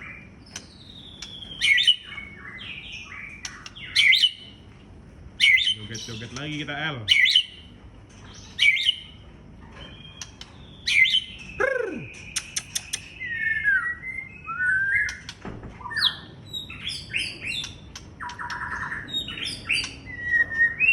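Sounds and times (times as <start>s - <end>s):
bird song with whistles and trills: 0.0s - 4.6s, 5.4s - 7.7s, 8.3s - 20.9s.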